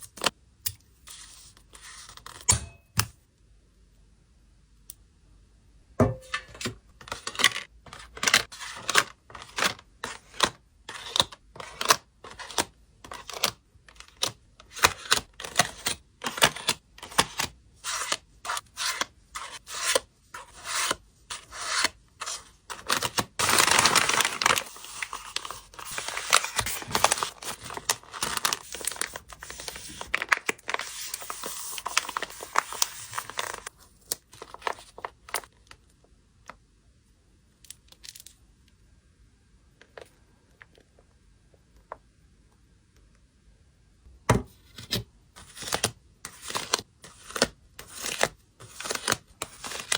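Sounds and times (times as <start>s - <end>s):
packing materials crinkling: 22.7s - 35.5s
packing material tearing: 22.8s - 33.7s.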